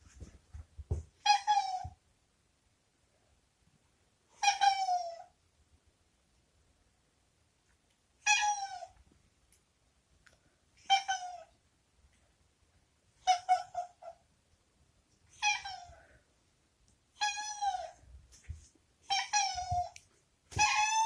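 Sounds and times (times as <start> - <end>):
cat meowing: 19.1 - 21.0.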